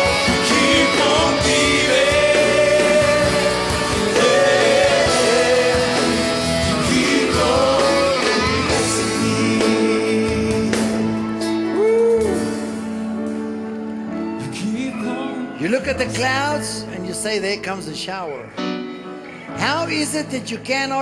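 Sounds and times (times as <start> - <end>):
person singing: 0.0 - 12.7, 14.4 - 16.3
worship band with guitar: 0.0 - 20.6.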